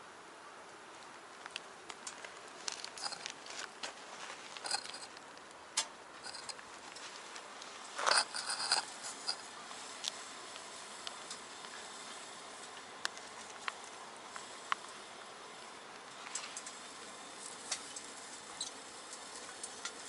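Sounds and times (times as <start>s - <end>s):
wood fire crackling in a stove: 0.0s - 20.0s.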